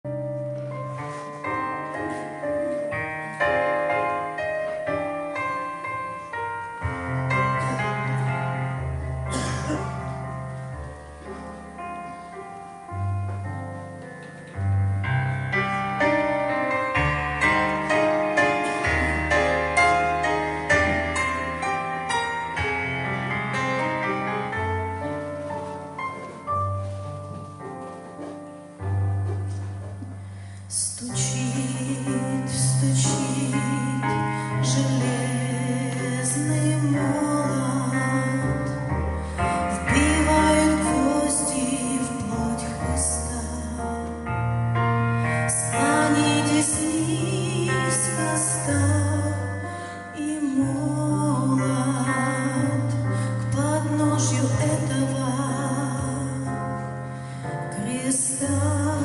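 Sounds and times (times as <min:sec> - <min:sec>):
piano keyboard melody and chords: 0:00.0 - 0:59.0.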